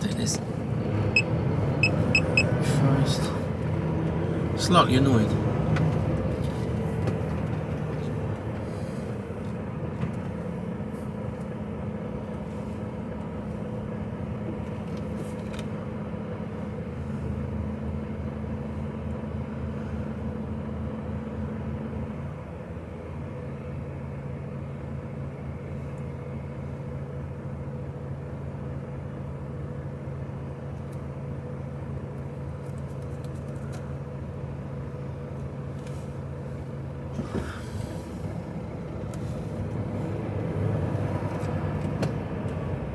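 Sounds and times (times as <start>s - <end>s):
lorry diesel engine running: 0.0s - 42.9s.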